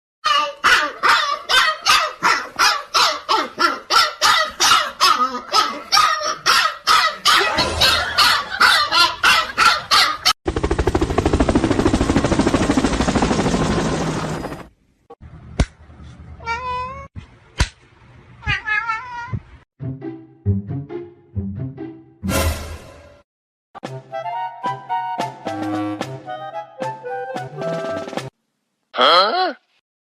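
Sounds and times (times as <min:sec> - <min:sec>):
dog barking rapidly: 0:00.3 - 0:10.3.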